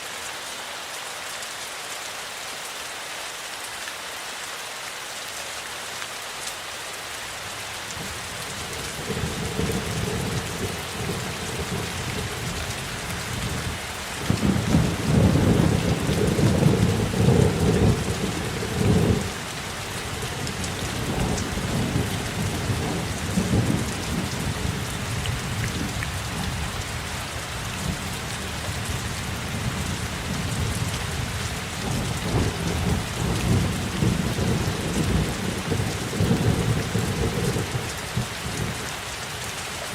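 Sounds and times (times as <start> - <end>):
rain falling: 0.0 - 39.9
thunder rumble: 8.0 - 19.5, 20.1 - 26.0, 27.9 - 38.6.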